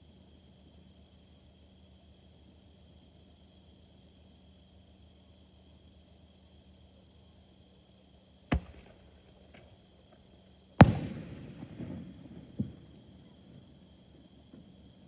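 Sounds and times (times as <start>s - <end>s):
insects chirping: 0.1s - 15.0s
firework shells bursting: 8.5s - 9.8s, 10.8s - 15.0s
crackling firework tail: 8.5s - 15.0s.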